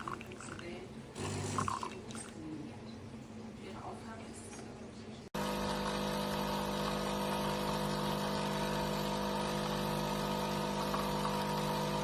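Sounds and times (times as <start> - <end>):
coffee machine humming: 0.0 - 2.3, 5.4 - 12.0.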